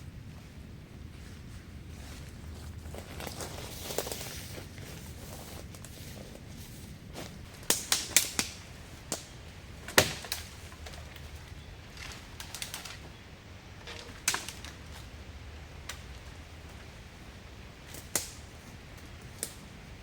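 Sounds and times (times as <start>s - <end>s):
faint steady hiss: 0.0s - 20.0s
sharp clicks and knocks: 13.8s - 15.1s.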